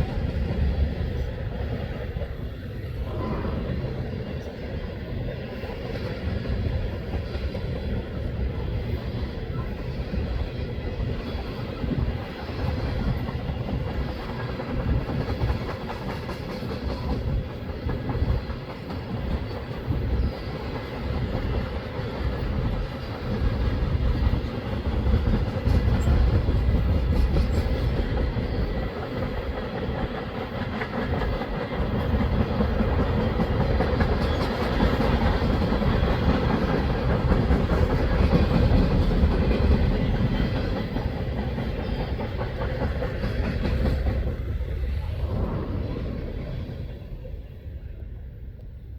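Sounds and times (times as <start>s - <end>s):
clickety-clack over rail joints: 0.0s - 47.1s
train wheels rumbling on rail: 0.0s - 48.9s.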